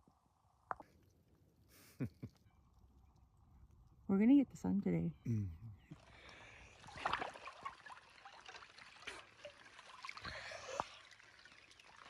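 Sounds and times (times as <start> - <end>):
soft water splashes: 5.9 - 12.0
water sloshing and trickling: 5.9 - 12.0.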